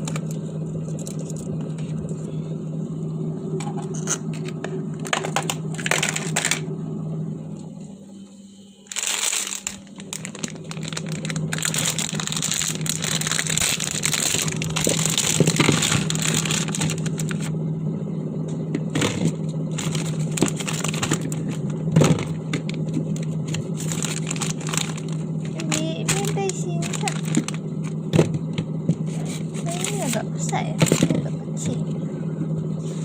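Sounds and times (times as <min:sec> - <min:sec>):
crinkling and crushing: 0:00.0 - 0:02.3, 0:08.9 - 0:17.5, 0:18.8 - 0:31.8
steady low hum: 0:00.0 - 0:33.0.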